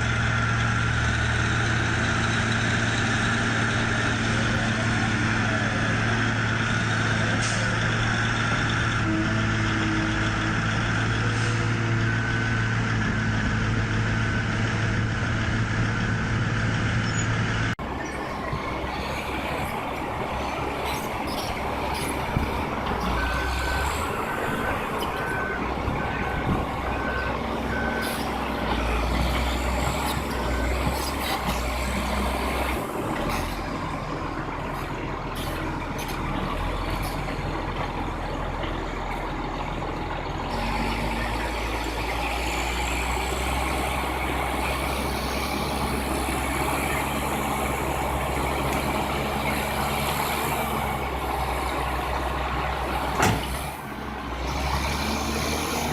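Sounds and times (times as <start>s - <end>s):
heavy equipment engines droning: 0.0s - 55.9s
reversing alarm beeping: 23.2s - 29.1s.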